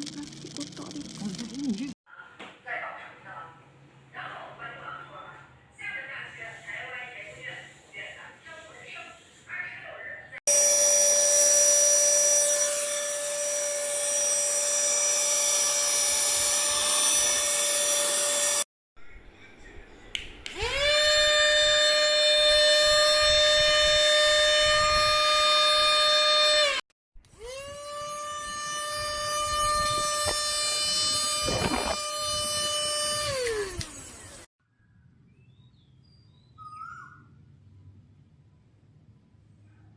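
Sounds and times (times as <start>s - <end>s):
handheld vacuum motor whining: 10.5s - 18.7s, 20.5s - 34.5s.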